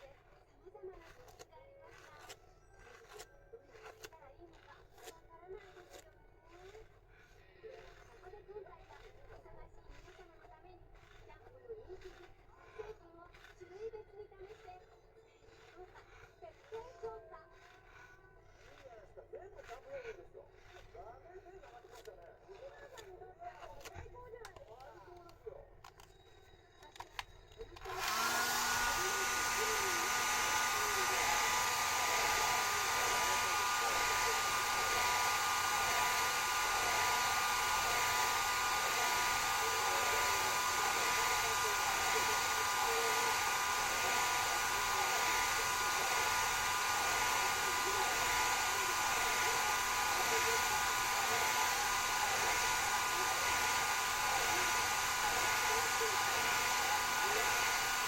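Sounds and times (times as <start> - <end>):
hair dryer blowing: 27.8 - 58.0
hair dryer switch: 27.8 - 58.0.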